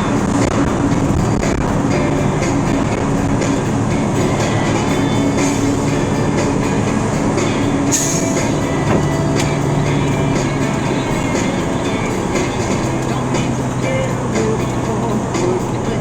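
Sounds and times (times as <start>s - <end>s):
vehicle driving at highway speed: 0.0s - 16.0s
brief hiss: 7.9s - 9.2s.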